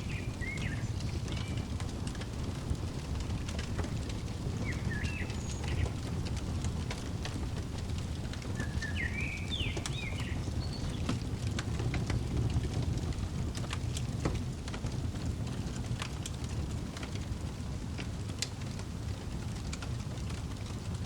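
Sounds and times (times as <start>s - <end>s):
small bird chirping: 0.0s - 1.8s, 3.2s - 11.2s
fireplace crackling: 0.0s - 21.0s.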